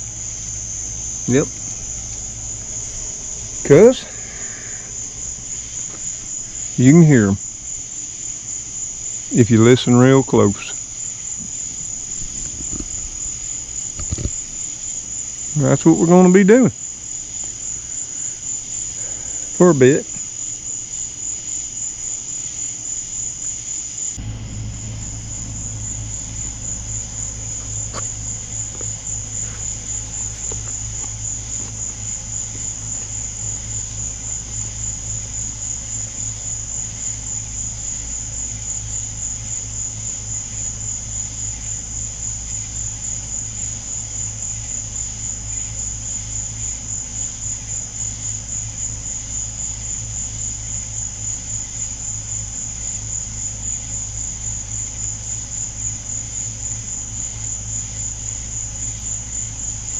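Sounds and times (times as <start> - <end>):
low hum: 0.0 - 14.6, 24.1 - 46.0
night insects trilling: 0.0 - 59.9.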